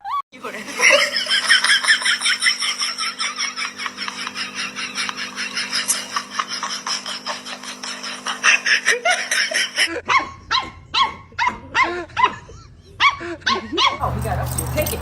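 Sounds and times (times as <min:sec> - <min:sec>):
dog barking: 0:10.0 - 0:14.5.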